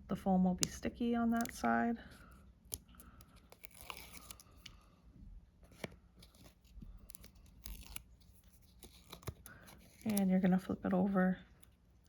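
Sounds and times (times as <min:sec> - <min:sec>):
tape liner peeling crinkle: 0:00.6 - 0:01.7, 0:02.3 - 0:04.8, 0:05.7 - 0:10.8.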